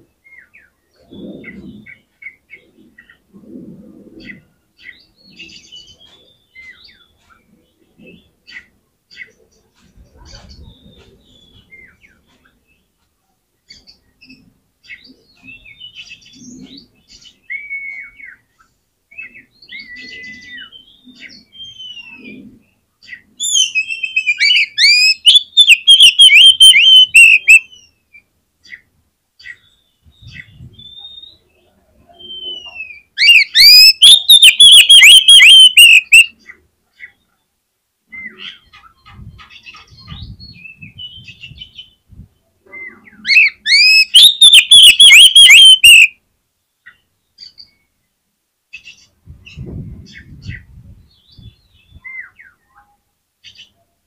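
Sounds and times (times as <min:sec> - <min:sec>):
bird singing: 0:23.0 - 0:28.0, 0:32.2 - 0:36.4, 0:42.7 - 0:46.1.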